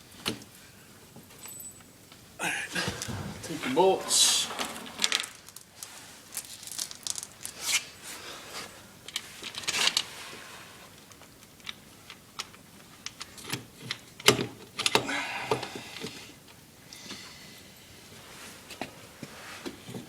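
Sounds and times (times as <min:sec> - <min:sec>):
rustling: 0:02.8 - 0:11.0
metal bolts clinking and rattling: 0:04.1 - 0:05.8.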